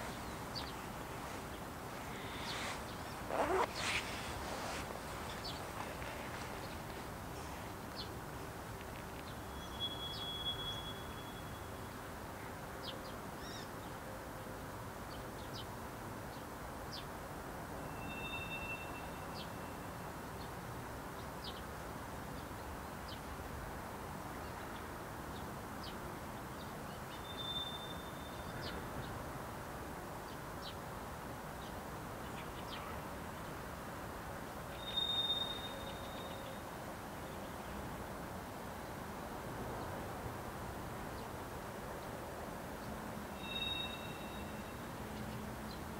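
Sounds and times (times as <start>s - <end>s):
brief high whistling tones: 34.8s - 36.3s, 43.4s - 44.6s
short high chirps: 34.8s - 36.4s, 43.4s - 44.7s.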